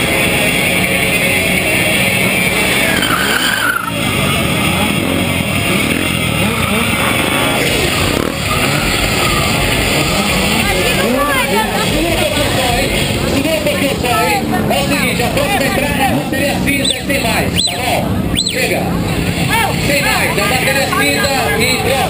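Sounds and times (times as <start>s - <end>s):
motorcycles revving: 0.0s - 22.0s
tyres skidding and squealing: 0.0s - 22.0s.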